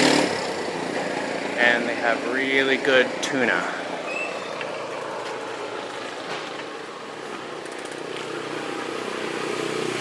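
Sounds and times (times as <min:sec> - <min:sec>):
small vehicle engine running: 0:00.0 - 0:01.6
road noise: 0:00.0 - 0:10.0.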